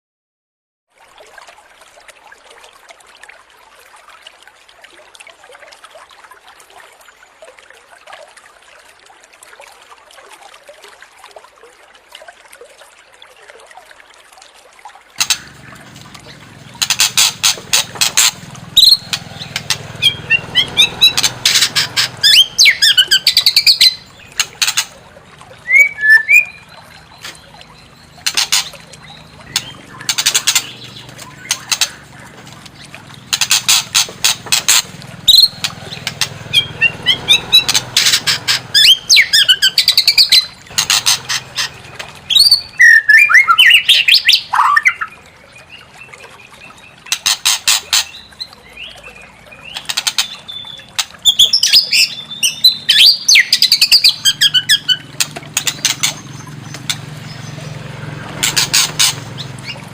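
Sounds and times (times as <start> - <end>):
shama bird song: 15.2 - 34.4, 35.1 - 47.1, 48.1 - 59.9.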